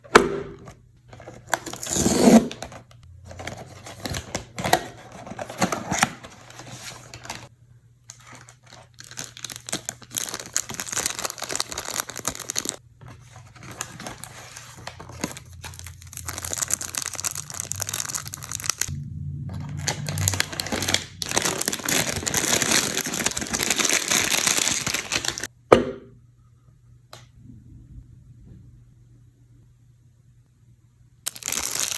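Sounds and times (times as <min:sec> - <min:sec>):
packaging tearing and crinkling: 0:01.1 - 0:07.5, 0:08.1 - 0:18.9, 0:19.6 - 0:25.5, 0:31.3 - 0:31.9.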